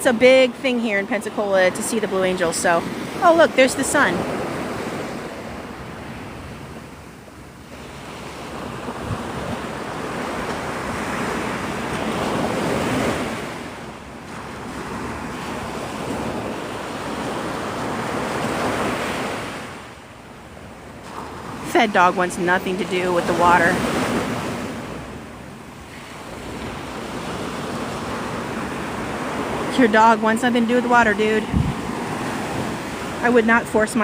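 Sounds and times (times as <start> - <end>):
wind buffeting microphone: 8.5 - 13.6, 22.9 - 34.0.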